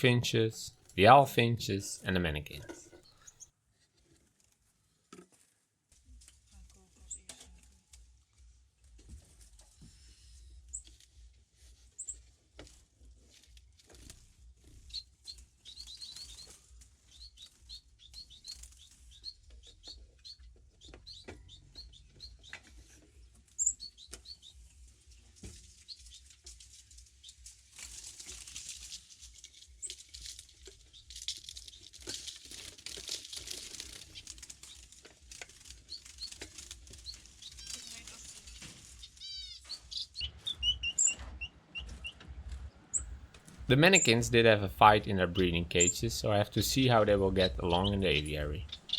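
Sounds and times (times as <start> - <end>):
finches fluttering wings: 29.8 - 39.3.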